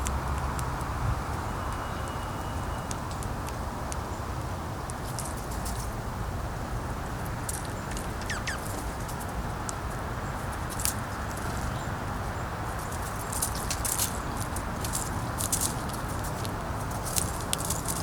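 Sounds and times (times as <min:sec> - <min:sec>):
short falling bird chirp: 0:08.1 - 0:08.8
animals cracking seeds: 0:12.6 - 0:18.0.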